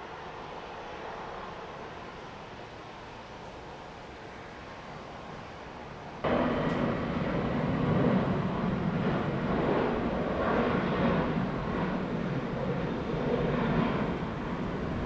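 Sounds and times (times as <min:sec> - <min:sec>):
jet engine rush: 0:06.2 - 0:15.0.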